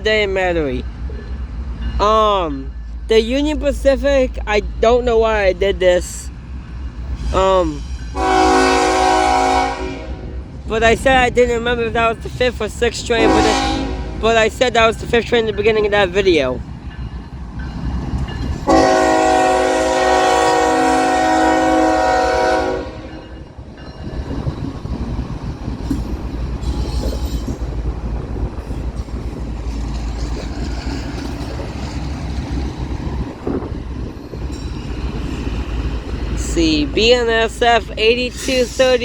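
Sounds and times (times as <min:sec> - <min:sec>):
freight train rumbling past: 0:00.0 - 0:39.0
locomotive air horn blast: 0:08.2 - 0:10.4, 0:13.2 - 0:14.2, 0:18.7 - 0:23.2.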